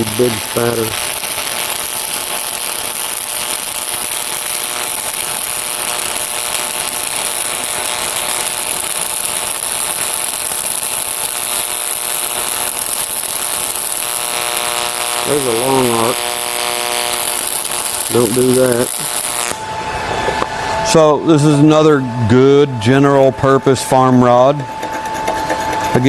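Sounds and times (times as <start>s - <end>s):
welding arc crackling hiss: 0.0s - 19.6s.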